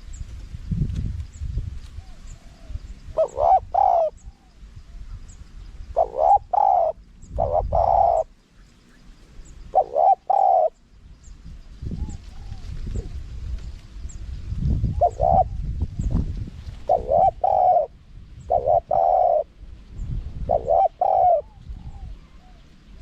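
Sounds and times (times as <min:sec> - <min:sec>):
dove cooing: 0:02.0 - 0:04.5, 0:05.9 - 0:08.4, 0:09.6 - 0:10.8, 0:14.8 - 0:16.1, 0:16.8 - 0:19.6, 0:20.4 - 0:22.7.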